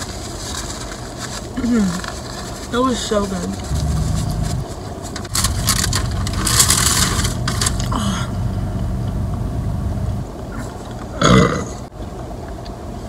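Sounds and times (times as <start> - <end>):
crinkling rustling noise: 0.0 - 8.1
car engine idling: 3.0 - 11.2.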